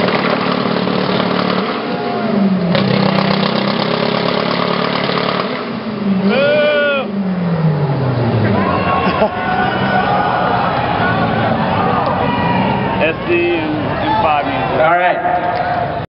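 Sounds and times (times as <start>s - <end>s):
car engine revving: 0.0s - 16.0s
person calling out: 6.2s - 7.2s.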